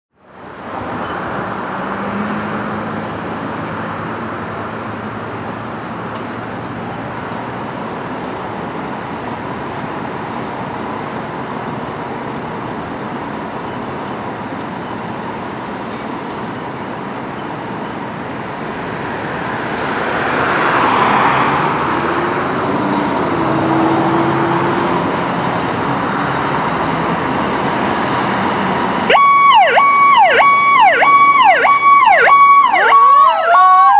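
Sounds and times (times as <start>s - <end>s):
road traffic noise: 0.1s - 33.9s
vehicle passing loudly: 19.0s - 33.9s
fire truck siren yelping: 29.0s - 33.9s.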